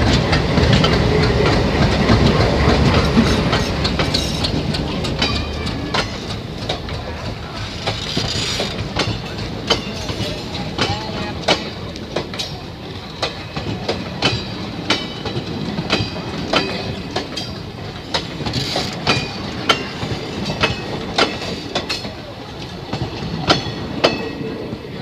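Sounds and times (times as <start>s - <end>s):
train wheels clacking over rail joints: 0.0s - 24.9s
low train rumble: 0.0s - 25.0s.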